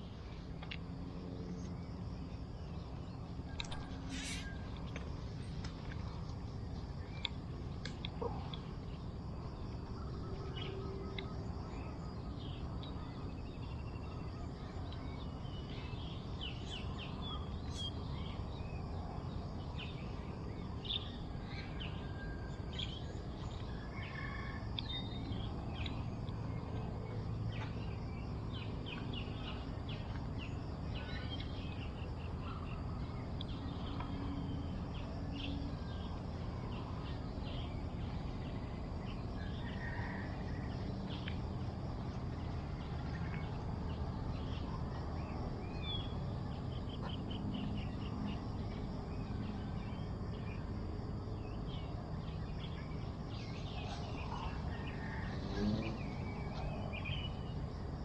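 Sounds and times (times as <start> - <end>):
low outdoor rumble: 0.0 - 58.0
birds chirping: 40.7 - 48.9, 51.5 - 57.6.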